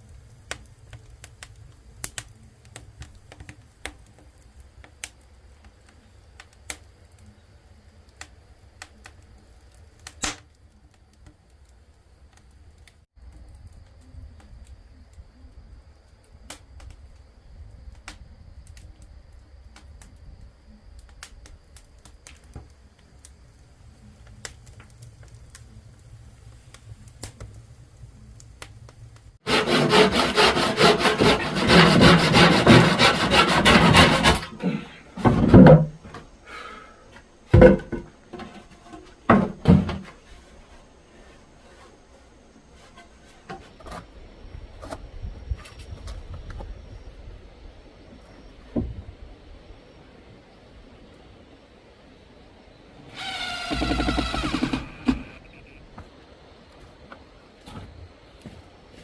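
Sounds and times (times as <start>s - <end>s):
hand saw rasping through wood: 29.4s - 34.7s
wooden knocks: 35.2s - 36.2s, 37.5s - 38.6s, 53.4s - 55.4s.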